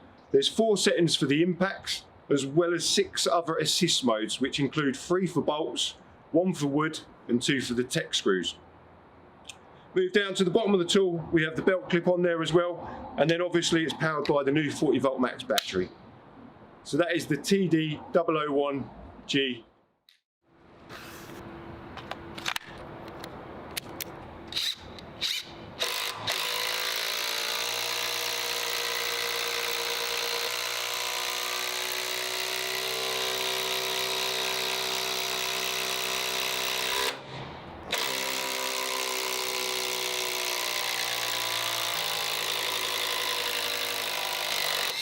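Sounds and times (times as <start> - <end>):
impact driver running: 24.6 - 37.2, 37.9 - 45.0.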